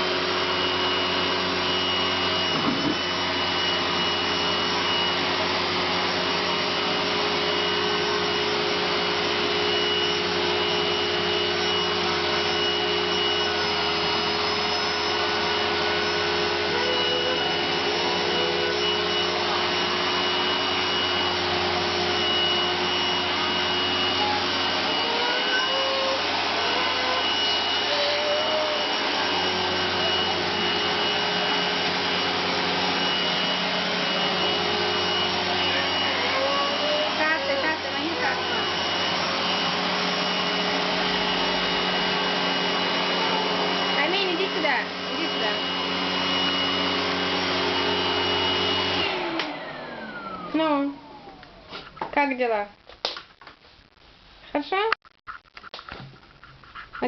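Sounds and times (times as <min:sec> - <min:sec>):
floor cleaner motor whining: 0:00.0 - 0:52.4
brushes rubbing on floor: 0:55.3 - 0:57.0.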